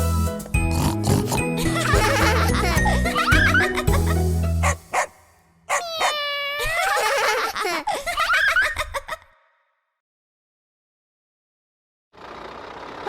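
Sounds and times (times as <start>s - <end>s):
children's song backing music: 0.0s - 4.9s.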